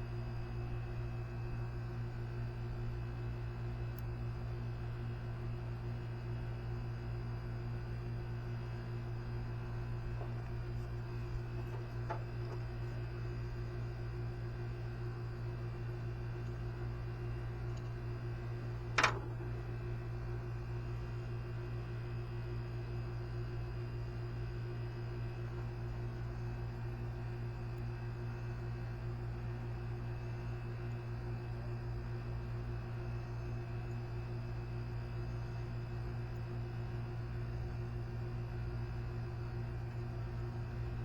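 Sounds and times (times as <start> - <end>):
low hum: 0.1 - 22.8.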